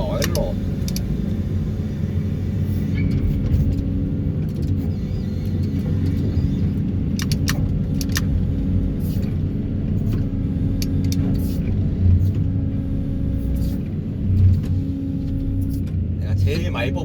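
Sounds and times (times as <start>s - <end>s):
sharp clicks: 0.0s - 1.1s, 4.4s - 8.3s
engine and hydraulic hum: 0.0s - 17.0s.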